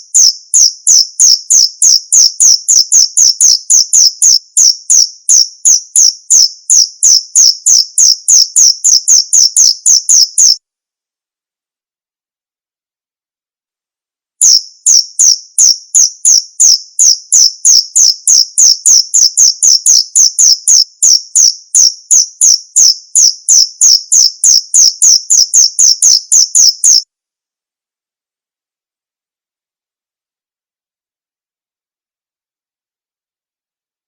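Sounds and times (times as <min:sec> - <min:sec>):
cricket chirping: 0:00.0 - 0:10.6, 0:14.4 - 0:27.0.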